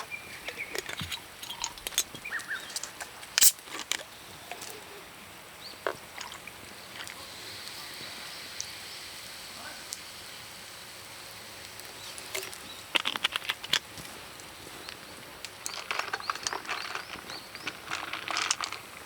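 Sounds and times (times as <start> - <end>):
metal utensils clicking: 0.4 - 4.8, 15.4 - 18.9
food sizzling: 5.6 - 19.0.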